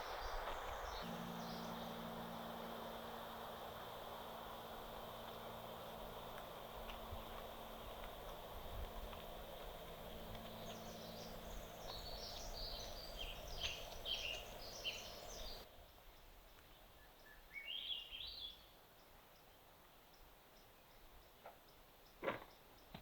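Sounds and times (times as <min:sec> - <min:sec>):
birds chirping: 0:00.0 - 0:15.7
steady low hum: 0:00.0 - 0:15.7.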